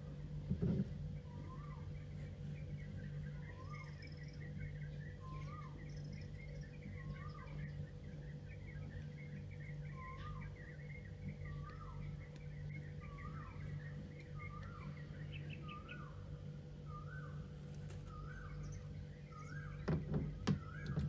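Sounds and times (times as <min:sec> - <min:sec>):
low steady hum: 0:00.0 - 0:21.0
bird call rising and falling: 0:01.2 - 0:21.0.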